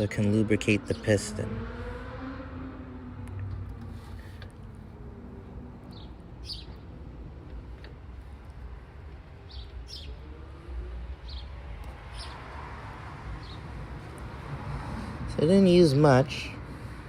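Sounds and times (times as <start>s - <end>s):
small bird chirping: 5.9s - 6.8s.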